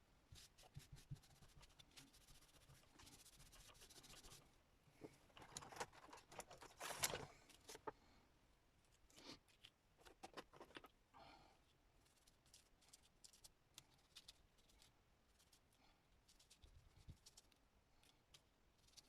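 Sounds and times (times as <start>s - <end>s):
paper rustling and scraping: 5.4s - 8.0s.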